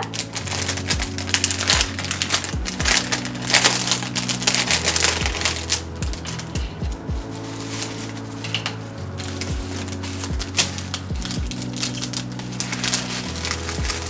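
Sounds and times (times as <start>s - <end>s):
packaging crinkling and rustling: 0.0s - 6.6s, 7.2s - 14.0s
music with bass and kick drum: 0.0s - 14.0s.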